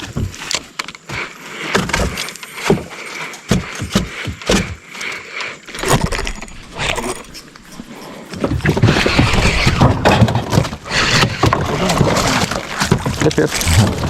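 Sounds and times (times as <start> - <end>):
fishing gear knocking and rattling: 8.3 - 14.0.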